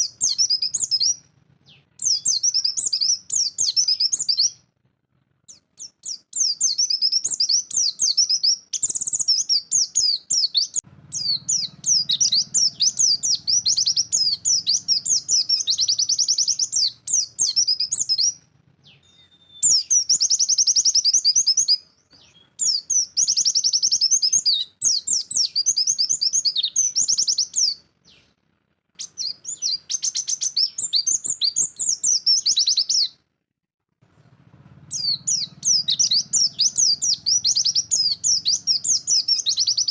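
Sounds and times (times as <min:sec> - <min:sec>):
bird singing fast chattering song: 0:00.0 - 0:04.6, 0:05.5 - 0:28.4, 0:29.0 - 0:33.1, 0:34.9 - 0:39.9
faint low hum: 0:00.0 - 0:31.7.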